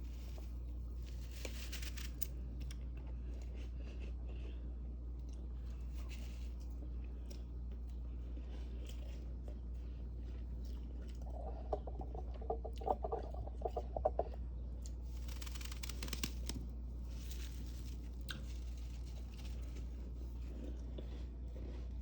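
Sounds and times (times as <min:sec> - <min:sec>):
freezer frost crunching: 0:00.0 - 0:04.6, 0:15.3 - 0:22.0
steady low hum: 0:00.0 - 0:22.0.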